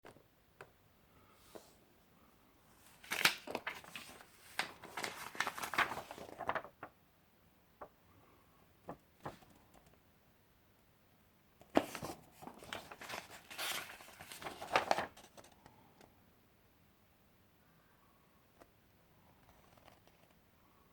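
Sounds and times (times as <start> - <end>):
paper pages rustling: 2.8 - 6.9, 8.9 - 9.9, 11.7 - 15.6.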